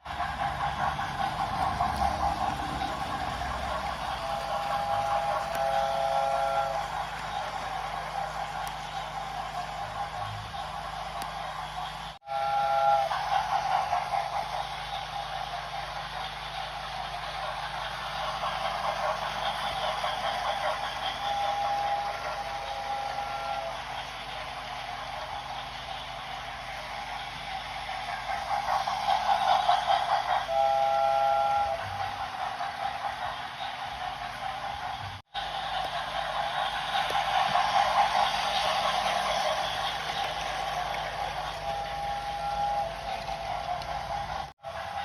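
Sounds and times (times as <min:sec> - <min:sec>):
steam locomotive hissing: 0:00.0 - 0:45.0
chime-like train whistle: 0:04.1 - 0:07.0, 0:12.2 - 0:13.7, 0:20.6 - 0:23.9, 0:30.4 - 0:32.1, 0:41.5 - 0:43.9.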